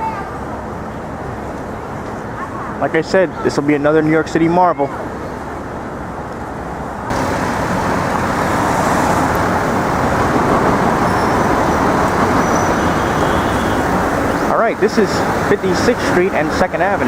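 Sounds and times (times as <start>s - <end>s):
city street traffic: 0.0s - 17.0s.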